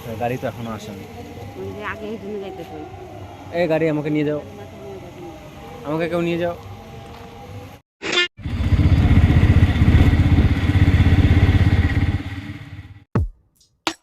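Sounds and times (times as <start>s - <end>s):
motorcycle engine running: 8.4s - 13.1s
deep electronic drum beat: 13.1s - 14.0s.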